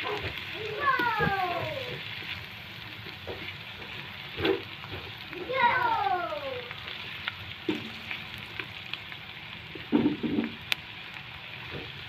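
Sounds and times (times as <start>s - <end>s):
spatula stirring in wok: 0.0s - 5.8s
garlic and onion sizzling in butter: 0.0s - 12.0s.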